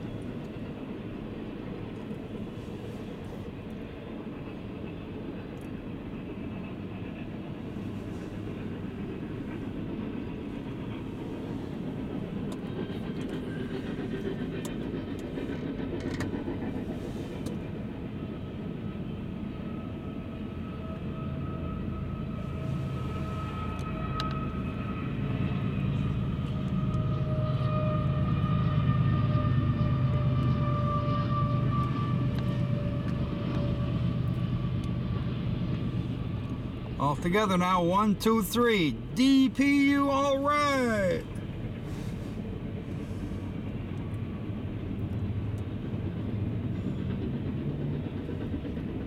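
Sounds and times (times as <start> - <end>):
train wheels rumbling on rails: 0.0 - 20.8, 41.2 - 49.0
low diesel engine hum: 6.0 - 48.8.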